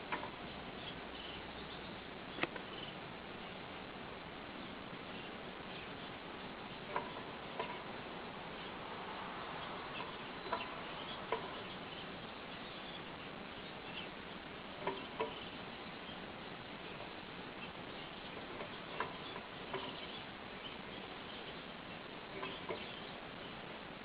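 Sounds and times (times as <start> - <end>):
canary chirps: 0.0 - 24.0
steady hiss: 0.0 - 24.0.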